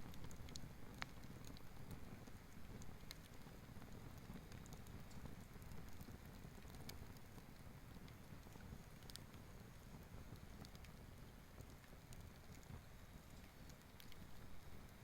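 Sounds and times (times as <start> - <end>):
campfire crackling and popping: 0.0 - 15.0
low fire rumble: 0.0 - 15.0.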